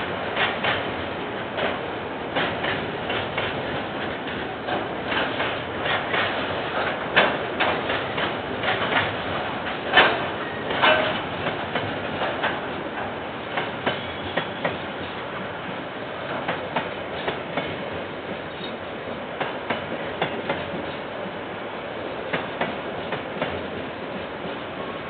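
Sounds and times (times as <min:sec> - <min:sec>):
train rumbling past: 0:00.0 - 0:25.0
clanks and clicks from wheels: 0:02.4 - 0:14.8.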